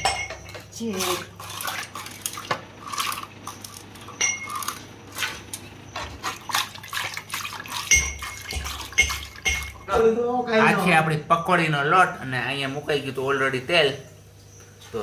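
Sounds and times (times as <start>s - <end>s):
wet batter whisking: 0.6s - 9.9s.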